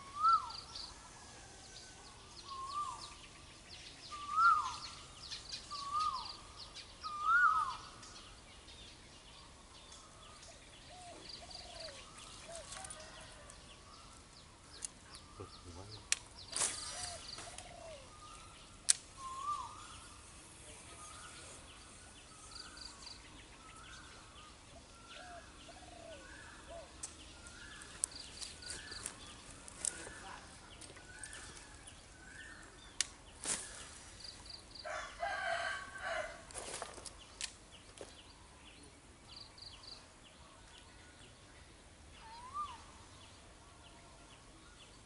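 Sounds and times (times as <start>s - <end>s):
birds calling: 0.0s - 45.0s
rooster crowing: 34.8s - 36.4s.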